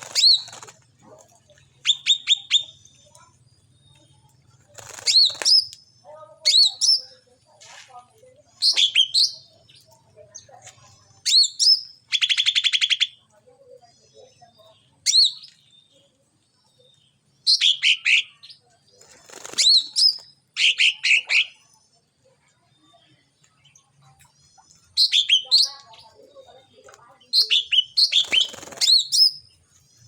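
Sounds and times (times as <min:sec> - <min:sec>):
fast buzzy bird trill: 0:00.0 - 0:00.8, 0:27.4 - 0:29.5
songbird high chirps: 0:01.3 - 0:07.5, 0:08.3 - 0:30.0.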